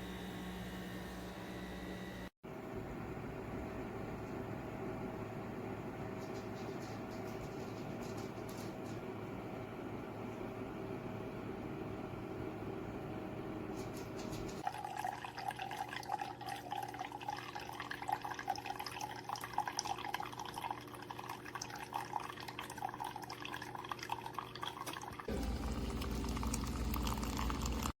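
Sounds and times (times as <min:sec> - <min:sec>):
low machine hum: 0:00.0 - 0:14.6, 0:25.3 - 0:28.0
coffee dripping into cup: 0:14.6 - 0:27.9.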